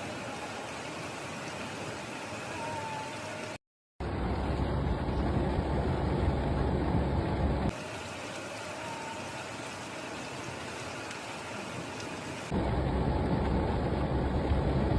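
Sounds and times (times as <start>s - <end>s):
heavy rain hiss: 0.0s - 4.3s, 7.7s - 13.4s
low rumble: 4.0s - 7.7s, 12.5s - 14.9s.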